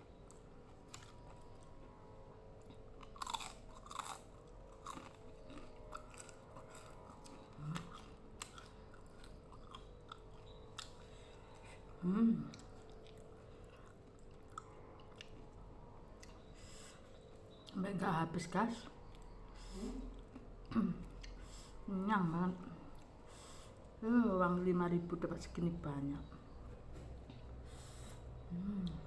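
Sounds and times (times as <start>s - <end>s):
wet chewing with crunches: 0.1s - 17.8s
hum-like vocal sound: 28.4s - 29.0s.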